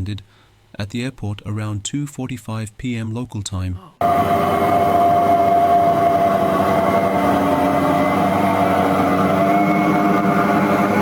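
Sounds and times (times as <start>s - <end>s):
large machine droning with whine: 4.0s - 11.0s.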